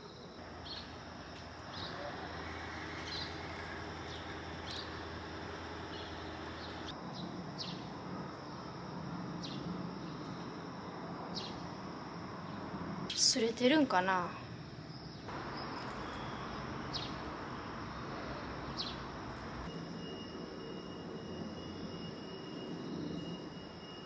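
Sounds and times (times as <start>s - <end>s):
background hum: 0.0s - 24.0s
high insect drone: 0.0s - 24.0s.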